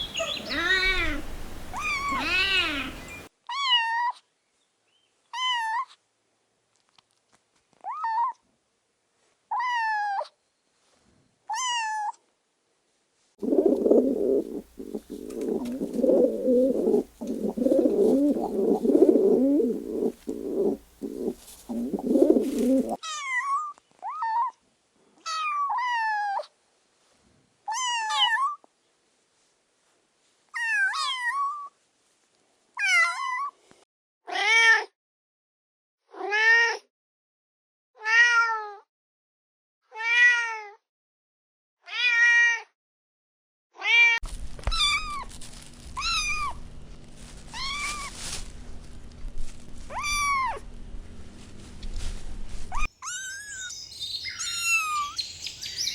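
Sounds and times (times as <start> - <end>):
young pet crying: 0.0 - 4.2, 13.5 - 23.0, 47.5 - 48.2, 49.9 - 50.6, 52.7 - 55.9.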